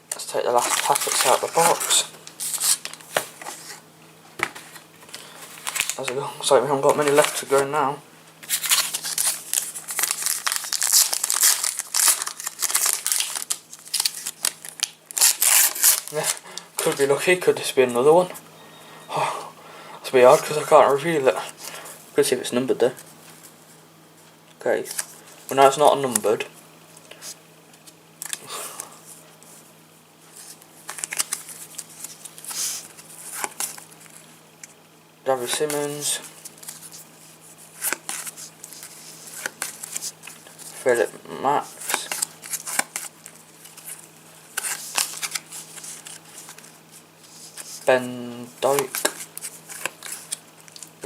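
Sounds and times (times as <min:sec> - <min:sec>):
foil packet crinkling: 0:00.2 - 0:03.8, 0:05.1 - 0:06.1, 0:08.4 - 0:17.1, 0:30.4 - 0:34.2, 0:37.8 - 0:41.0, 0:41.6 - 0:47.9, 0:48.6 - 0:51.0
trading cards rustling: 0:00.4 - 0:03.8, 0:04.4 - 0:06.2, 0:06.8 - 0:07.7, 0:08.4 - 0:17.2, 0:30.3 - 0:34.2, 0:35.4 - 0:51.0.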